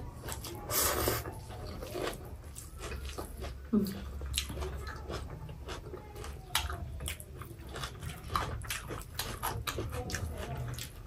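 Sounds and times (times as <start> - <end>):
chewing and lip-smacking: 0.0 - 11.0.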